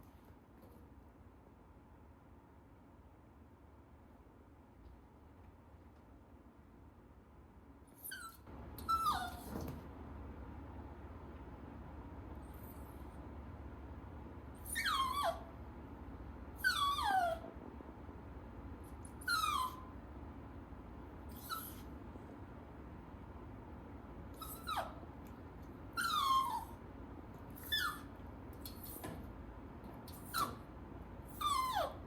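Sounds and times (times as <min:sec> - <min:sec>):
puppy whining: 0:07.9 - 0:09.6, 0:14.6 - 0:15.6, 0:16.6 - 0:17.6, 0:18.9 - 0:20.0, 0:21.3 - 0:21.9, 0:24.3 - 0:25.1, 0:25.9 - 0:26.8, 0:27.5 - 0:29.1, 0:30.1 - 0:30.7, 0:31.3 - 0:32.0.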